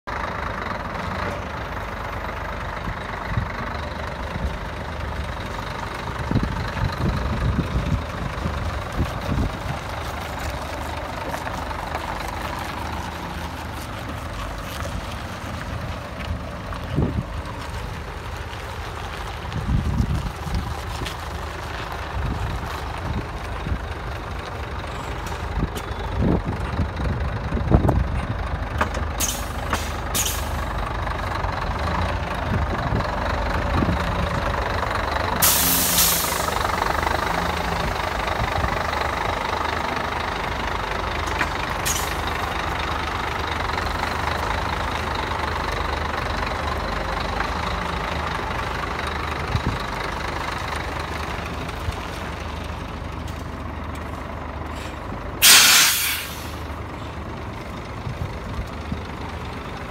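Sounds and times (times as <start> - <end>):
truck diesel engine idling: 0.0 - 59.9
air hissing: 35.4 - 36.6, 55.4 - 56.6.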